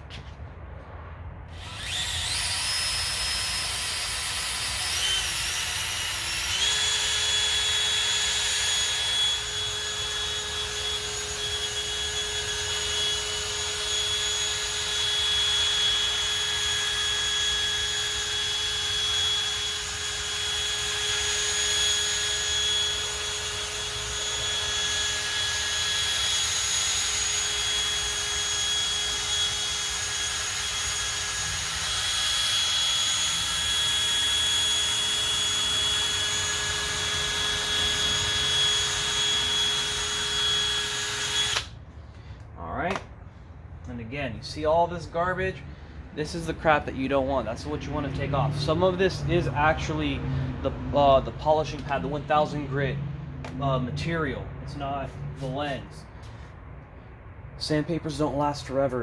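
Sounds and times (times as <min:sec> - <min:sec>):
power sander whining: 0:01.5 - 0:41.8.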